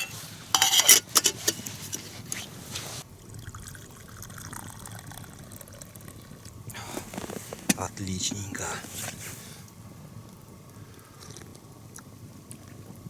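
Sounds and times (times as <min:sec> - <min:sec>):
tea trickling into a mug: 0:00.0 - 0:09.5.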